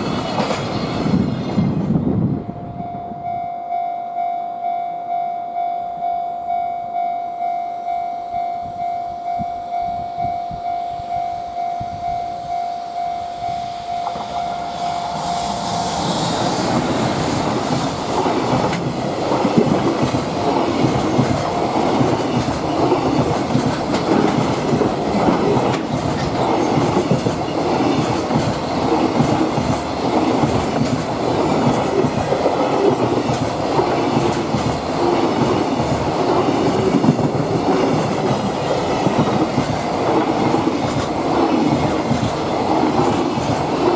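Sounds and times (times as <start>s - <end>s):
freight train passing: 0.0s - 43.9s
pulsing warning tone: 2.7s - 17.2s
wheels clacking over rail joints: 16.7s - 43.9s.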